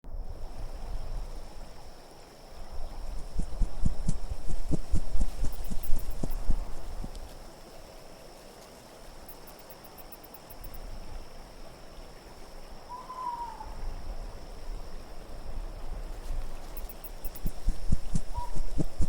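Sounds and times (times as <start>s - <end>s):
low wind rumbling: 0.0s - 7.4s, 13.0s - 19.0s
owl hoot: 12.9s - 13.8s, 18.1s - 19.0s.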